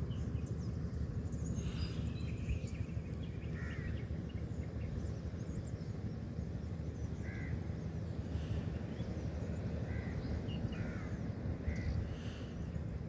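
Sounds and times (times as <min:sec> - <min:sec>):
low outdoor rumble: 0:00.0 - 0:13.0
bird calling: 0:01.3 - 0:05.0, 0:07.0 - 0:13.0.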